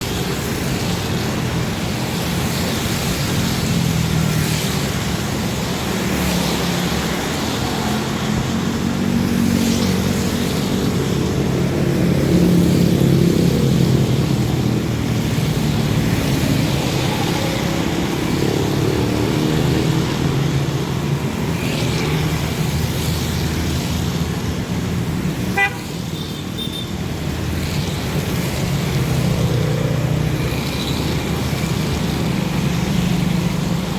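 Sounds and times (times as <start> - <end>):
car horns tooting: 25.5 - 26.9.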